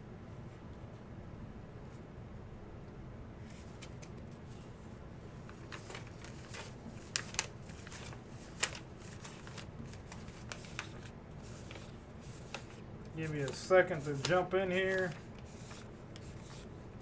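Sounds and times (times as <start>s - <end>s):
rustling and handling noises: 3.4s - 17.0s.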